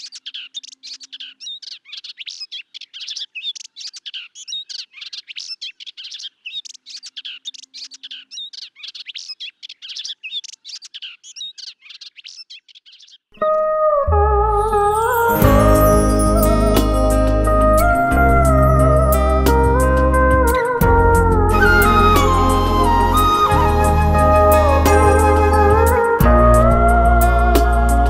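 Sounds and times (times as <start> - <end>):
birds chirping and trilling: 0.0 - 13.7.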